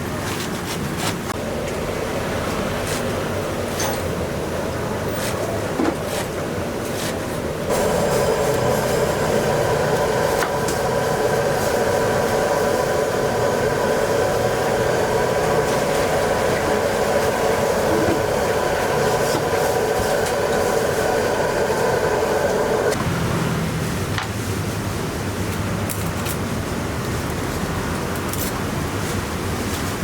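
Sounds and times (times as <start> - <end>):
kitchen equipment roaring: 0.0 - 30.0
faint steady whine: 7.5 - 23.0.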